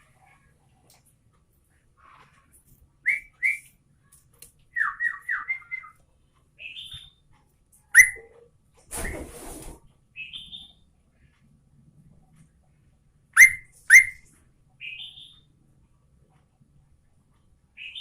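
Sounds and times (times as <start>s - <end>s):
bulbul singing whistled phrases: 3.0s - 3.8s, 4.7s - 6.0s, 6.6s - 7.2s, 8.0s - 8.3s, 10.2s - 10.8s, 13.4s - 14.2s, 14.8s - 15.5s
noisy rustle: 8.7s - 10.0s.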